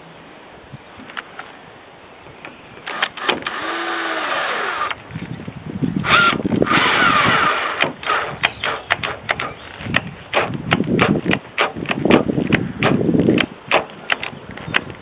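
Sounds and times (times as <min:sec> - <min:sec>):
power tool running: 0:02.9 - 0:05.0, 0:06.0 - 0:08.4.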